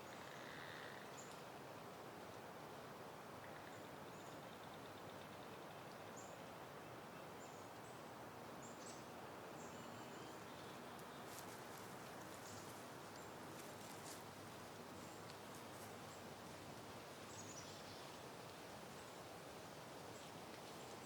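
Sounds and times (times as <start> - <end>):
soft wind: 0.0 - 21.0
leaves rustling: 10.4 - 21.0.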